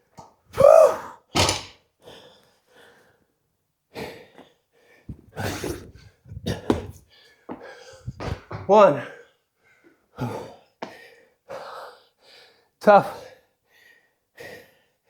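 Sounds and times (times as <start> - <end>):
person breathing heavily: 4.2 - 8.5
dull thuds: 5.1 - 7.0, 8.0 - 8.7.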